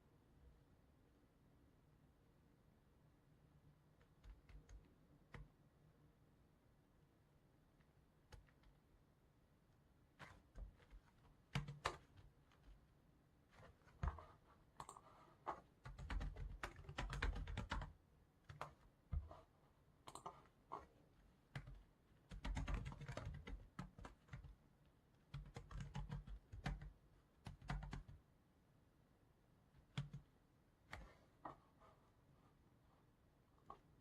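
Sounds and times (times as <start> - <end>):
typing on computer keyboard: 4.1 - 5.5, 10.2 - 12.8, 13.6 - 17.9, 18.5 - 19.4, 20.1 - 20.8, 21.5 - 24.6, 25.3 - 28.2, 29.8 - 30.3.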